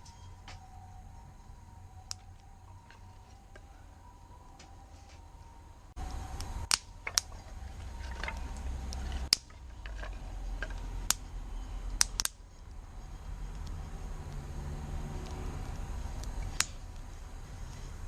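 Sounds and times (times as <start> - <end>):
low steady hiss: 0.0 - 18.0
campfire crackling and popping: 5.9 - 17.9.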